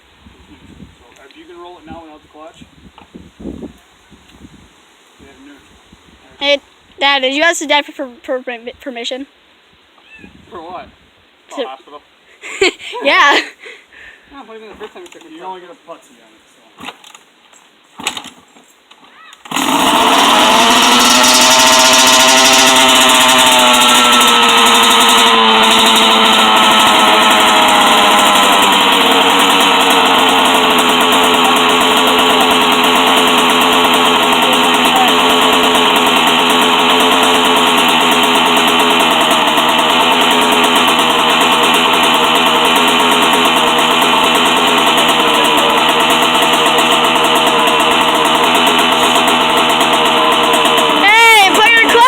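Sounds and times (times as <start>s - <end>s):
dirt bike engine revving: 19.5s - 52.0s.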